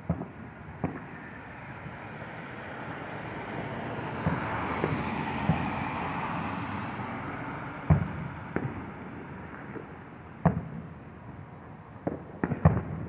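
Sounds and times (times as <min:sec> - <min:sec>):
distant fireworks thumps: 0:00.0 - 0:01.2, 0:04.1 - 0:06.4, 0:07.8 - 0:11.4, 0:12.0 - 0:13.0
vehicle passing: 0:00.8 - 0:10.5.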